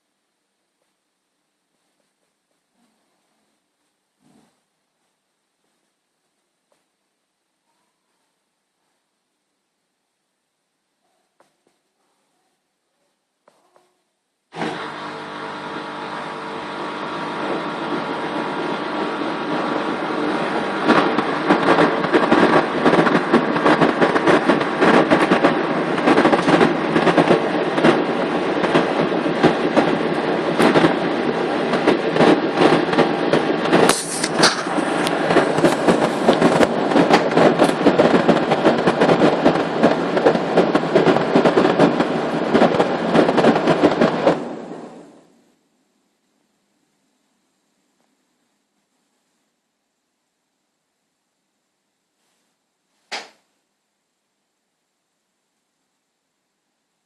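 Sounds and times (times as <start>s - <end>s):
washing machine whirring: 14.5s - 45.2s.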